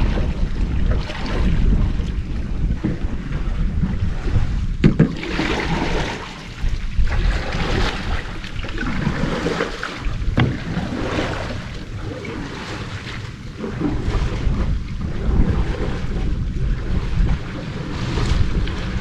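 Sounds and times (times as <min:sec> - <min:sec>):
paddle splashing in water: 0:00.0 - 0:19.0
wind on microphone: 0:00.0 - 0:19.0
sharp knocks: 0:04.8 - 0:05.2, 0:10.4 - 0:10.7.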